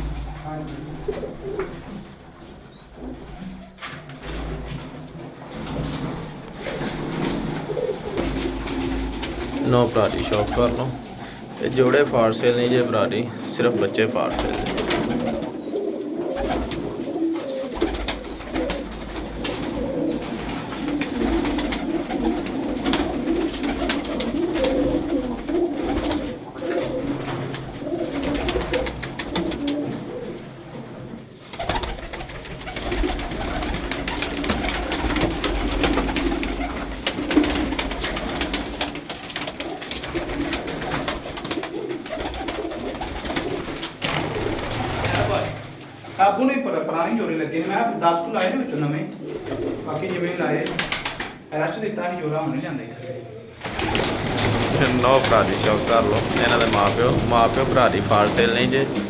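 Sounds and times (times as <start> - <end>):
pigeons cooing: 0.0 - 46.2, 49.1 - 51.5, 53.0 - 59.0.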